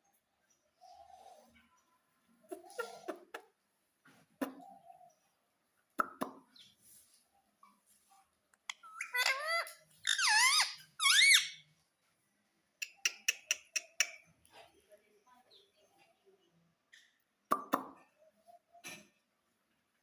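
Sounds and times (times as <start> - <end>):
parrot squeaky calls: 8.7 - 11.6.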